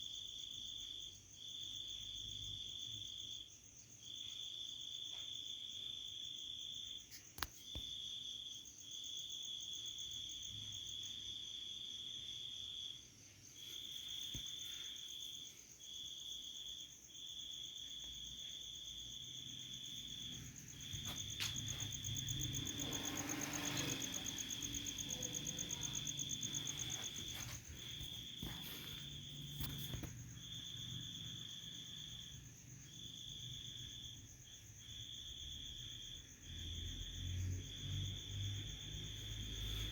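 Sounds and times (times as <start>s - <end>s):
insect high trill: 19.7s - 32.3s
insect fast-pulsing call: 21.6s - 27.1s.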